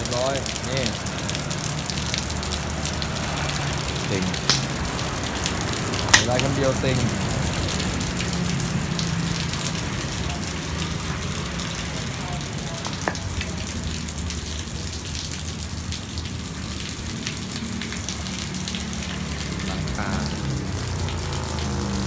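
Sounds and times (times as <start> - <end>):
rain hissing: 0.0 - 22.0
raindrop taps: 0.0 - 22.0.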